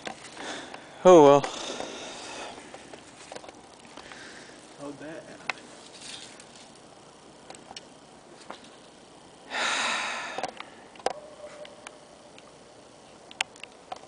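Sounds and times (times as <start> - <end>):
person exhaling loudly: 9.5 - 10.5
small clicks: 13.3 - 14.0.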